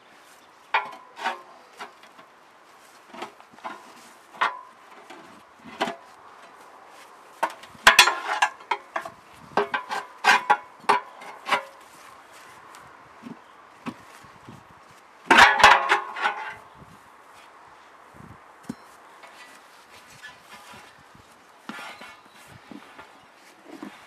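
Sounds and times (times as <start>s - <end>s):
tools and metal parts clanking: 0.8s - 2.3s, 3.1s - 6.6s, 7.4s - 11.8s, 15.3s - 16.7s.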